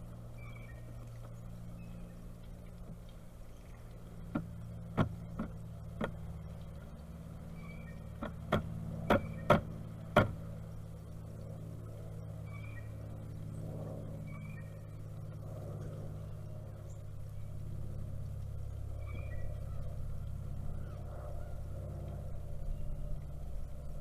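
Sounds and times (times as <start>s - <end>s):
low steady hum: 0.0s - 24.0s
faint small-bird chirps: 0.4s - 0.9s, 7.5s - 8.1s, 12.4s - 13.0s, 19.0s - 19.9s
woodpecker pecking: 2.4s - 7.0s, 7.6s - 10.5s.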